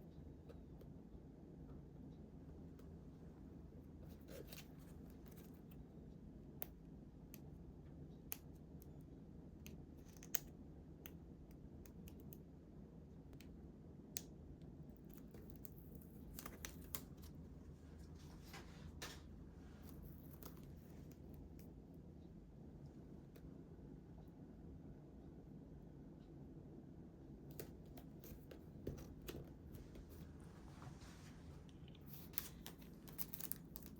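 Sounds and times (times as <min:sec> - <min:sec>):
faint low room hum: 0:00.0 - 0:33.9
scissors snipping paper: 0:32.0 - 0:33.9.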